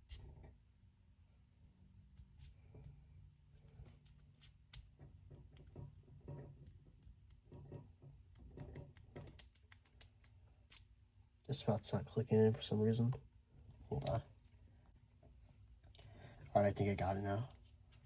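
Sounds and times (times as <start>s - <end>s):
small clicks and rubbing: 2.1s - 11.0s.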